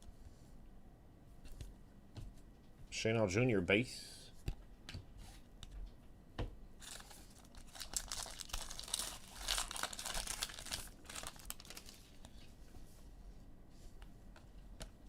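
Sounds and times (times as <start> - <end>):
foil wrapper crinkling and tearing: 6.8 - 12.3.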